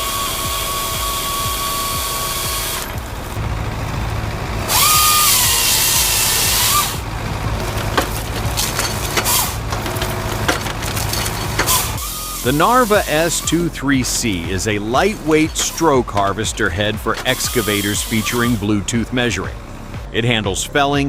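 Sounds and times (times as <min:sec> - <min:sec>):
power saw cutting wood: 0:00.0 - 0:20.0
steady low hum: 0:00.0 - 0:21.0
sharp cracks and knocks: 0:05.4 - 0:12.1.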